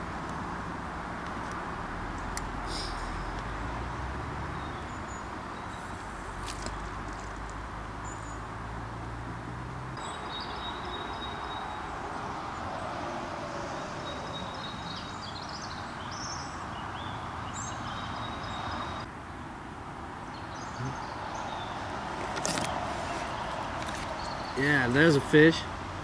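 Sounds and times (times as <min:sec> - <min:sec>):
outdoor background noise: 0:00.0 - 0:26.0
small birds chirping: 0:04.5 - 0:07.0, 0:08.0 - 0:08.6, 0:10.0 - 0:19.1, 0:20.2 - 0:25.8.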